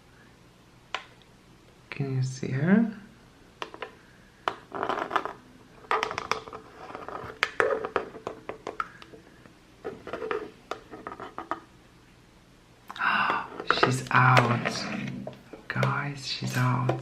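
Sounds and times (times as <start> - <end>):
scratchy rubs: 6.5 - 8.2, 9.8 - 11.6.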